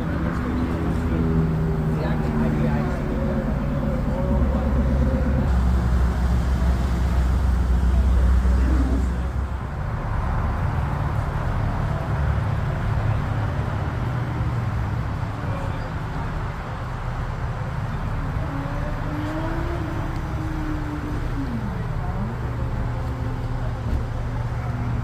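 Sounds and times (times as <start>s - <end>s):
car engine running: 0.0s - 13.1s.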